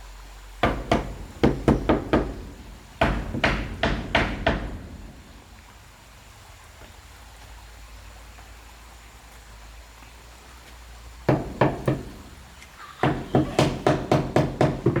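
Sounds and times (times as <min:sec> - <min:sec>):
knocks on wood: 0:00.6 - 0:05.5, 0:11.3 - 0:12.4, 0:13.0 - 0:15.0.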